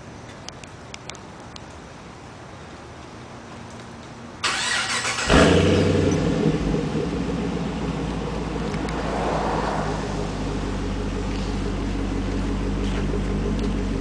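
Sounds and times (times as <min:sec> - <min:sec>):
car starter cranking: 0:04.4 - 0:06.3
car engine firing and idling: 0:04.4 - 0:14.0.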